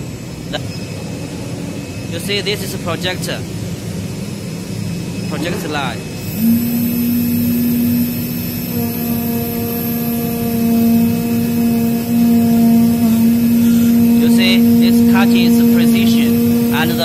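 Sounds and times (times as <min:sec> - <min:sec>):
higher machine tone: 0:00.0 - 0:17.0
cutting machine hum: 0:04.8 - 0:17.0.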